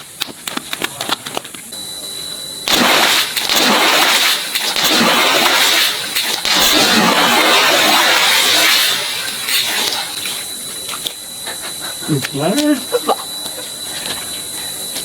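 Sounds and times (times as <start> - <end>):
sudden loud burst: 2.7 - 10.2
water gushing: 2.7 - 10.5.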